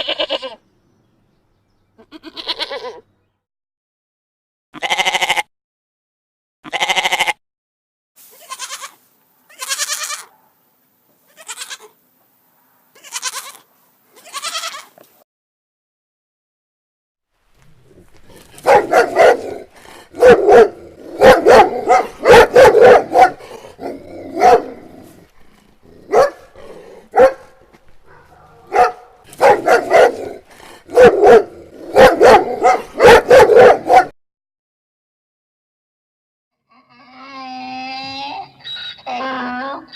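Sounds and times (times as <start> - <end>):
dog barking: 18.4 - 24.9, 26.0 - 34.1.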